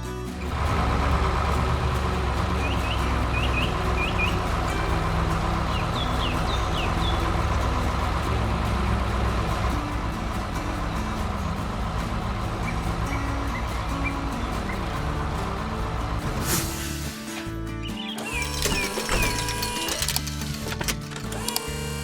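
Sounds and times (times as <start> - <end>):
heavy vehicle engine running: 0.0 - 22.0
bird chirps: 2.5 - 8.2, 12.6 - 15.4, 17.8 - 19.7.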